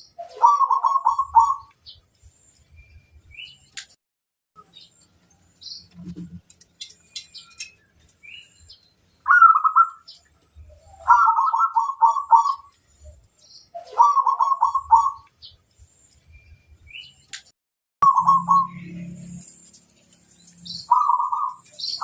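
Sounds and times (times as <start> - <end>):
small birds chirping: 0.0 - 4.0, 4.6 - 22.0
dove cooing: 0.2 - 1.7, 11.0 - 12.6, 13.8 - 15.2, 18.0 - 18.8.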